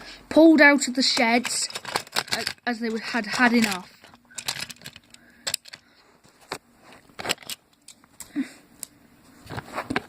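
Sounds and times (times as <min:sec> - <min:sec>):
toy trains clicking on track: 0:01.1 - 0:05.8.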